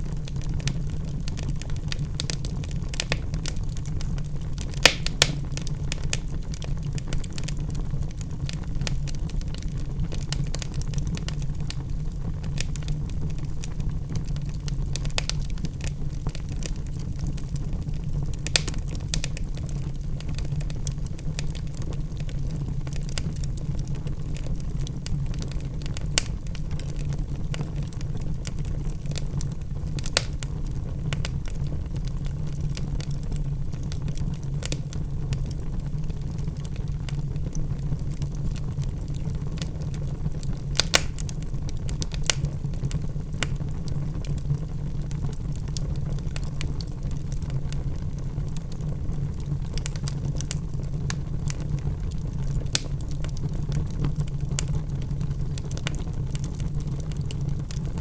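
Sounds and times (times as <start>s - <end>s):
fire crackles and pops: 0.0s - 58.0s
fire roaring in fireplace: 0.0s - 58.0s.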